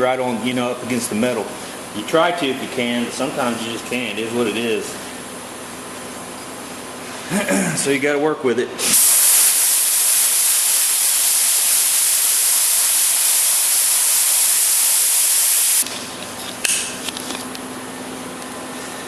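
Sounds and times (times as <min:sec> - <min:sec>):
pressurised gas hissing from nozzle: 0:08.8 - 0:15.8.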